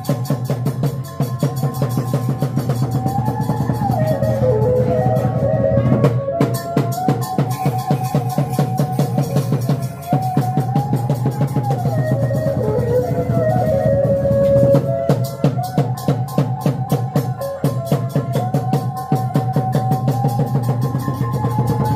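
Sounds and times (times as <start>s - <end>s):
fast driving drumming: 0.0s - 21.9s
sliding melody line: 1.0s - 15.8s.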